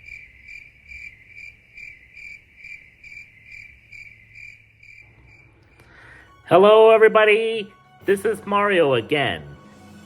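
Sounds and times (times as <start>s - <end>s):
cricket chirping: 0.0s - 6.4s.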